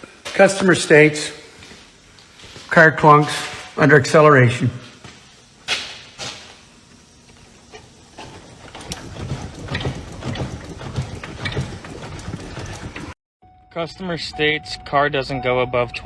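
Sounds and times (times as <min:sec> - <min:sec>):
clunks and knocks: 0:08.2 - 0:13.1.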